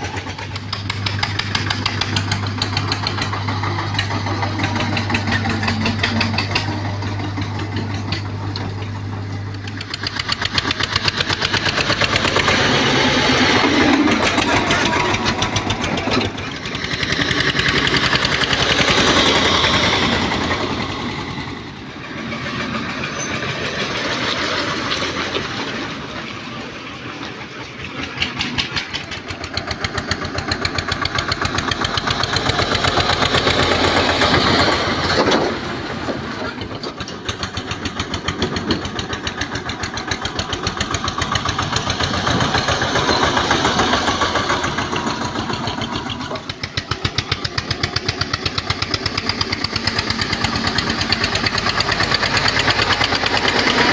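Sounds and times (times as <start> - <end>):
tractor diesel engine chugging: 0.0 - 53.9.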